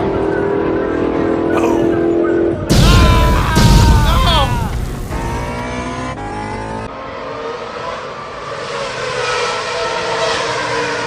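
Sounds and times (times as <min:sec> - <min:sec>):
vehicle engine revving: 0:04.6 - 0:11.0.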